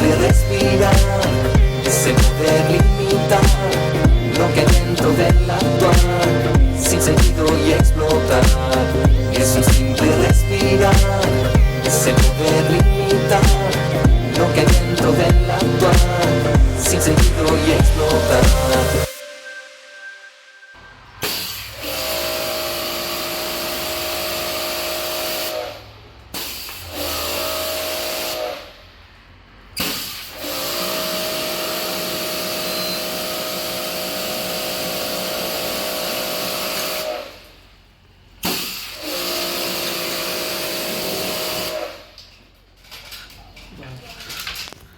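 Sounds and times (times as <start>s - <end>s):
pressure washer spraying: 0.0s - 19.1s.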